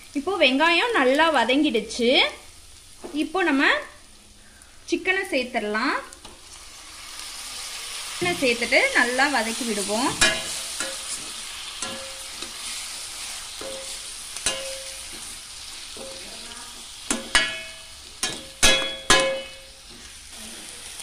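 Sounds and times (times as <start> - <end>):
food sizzling in oil: 0.0 - 21.0
spatula stirring and scraping: 7.0 - 21.0
spatula clanking on steel pan: 10.1 - 11.2, 11.8 - 12.6, 13.6 - 15.3, 17.1 - 19.7.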